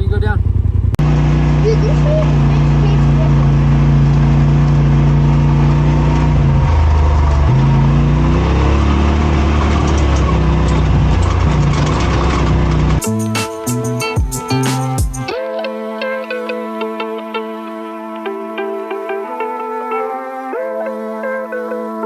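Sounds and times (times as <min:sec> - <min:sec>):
utility vehicle engine running: 0:00.0 - 0:15.1
music: 0:13.0 - 0:22.0.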